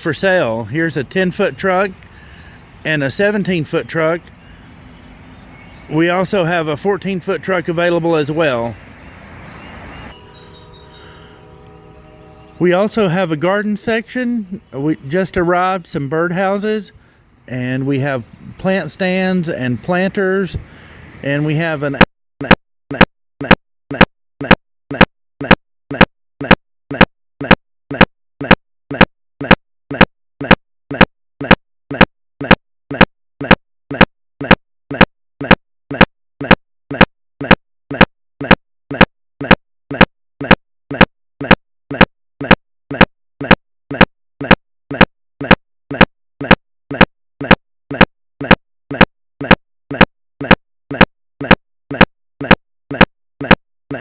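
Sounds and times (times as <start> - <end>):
stuttering clicks with low hum: 22.0 - 54.0.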